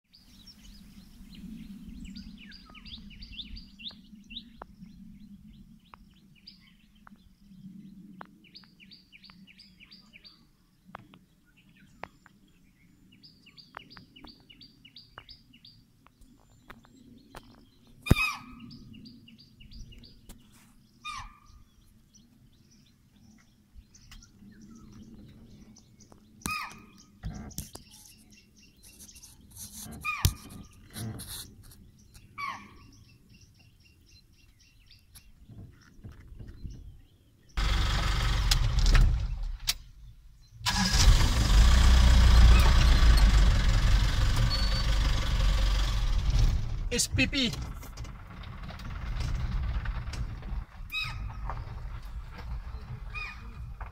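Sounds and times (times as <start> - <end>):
loud short bird calls: 18.0 - 18.9, 21.0 - 21.7, 26.4 - 33.0, 50.9 - 51.6, 53.1 - 53.6
low steady rumble: 37.5 - 53.9.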